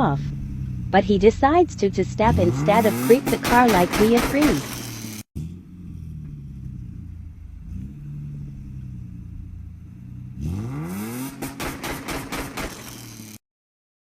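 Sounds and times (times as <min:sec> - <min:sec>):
sharp exhaust pops: 0:00.0 - 0:05.4, 0:10.4 - 0:13.4
car engine idling and revving: 0:00.0 - 0:13.4.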